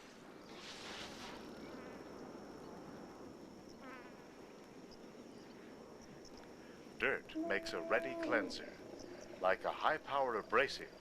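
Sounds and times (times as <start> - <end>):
high-pitched insect drone: 4.9 - 9.4.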